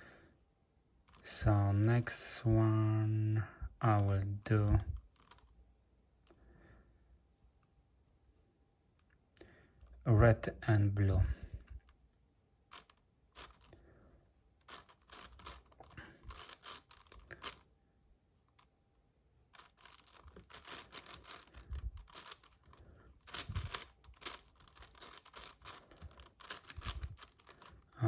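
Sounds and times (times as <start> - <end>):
puzzle cube plastic clicks: 3.9 - 5.5, 12.7 - 13.8, 14.6 - 17.6, 19.6 - 28.0.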